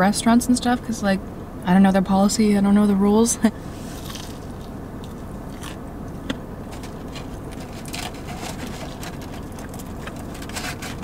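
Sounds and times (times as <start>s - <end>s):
chewing crunchy food: 3.8s - 11.0s.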